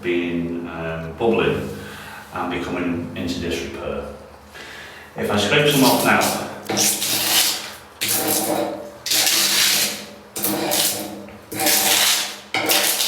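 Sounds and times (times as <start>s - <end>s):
paint scraped off wall: 5.7s - 13.0s.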